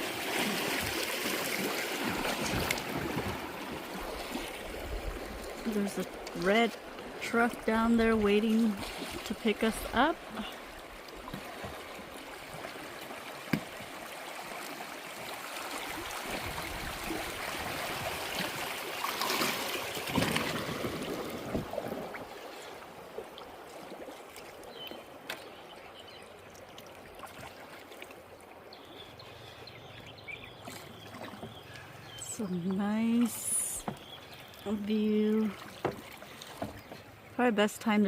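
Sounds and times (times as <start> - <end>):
river water rushing and gurgling: 0.0 - 37.5.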